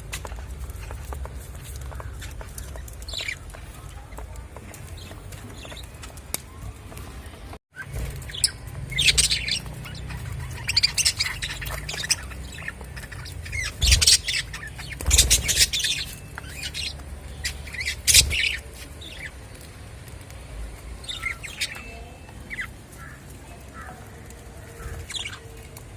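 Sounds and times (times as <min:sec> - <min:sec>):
budgerigars chirping and squawking: 0:01.8 - 0:04.2, 0:07.8 - 0:19.4, 0:21.0 - 0:24.1, 0:24.7 - 0:25.6.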